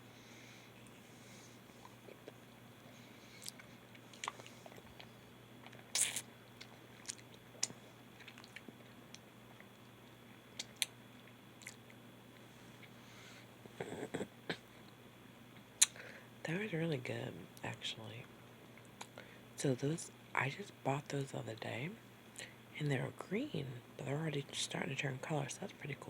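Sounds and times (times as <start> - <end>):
person chewing fruit: 1.7 - 2.5, 3.3 - 12.0.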